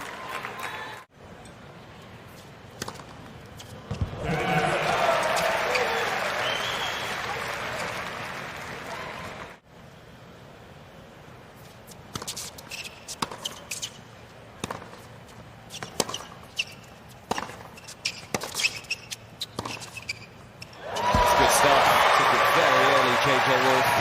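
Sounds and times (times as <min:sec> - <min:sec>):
tennis ball bouncing on hard court: 0:02.8 - 0:04.2, 0:13.1 - 0:13.8, 0:14.6 - 0:15.1, 0:15.7 - 0:20.2
short high squeaks: 0:12.3 - 0:14.0, 0:15.7 - 0:17.0, 0:17.6 - 0:21.1.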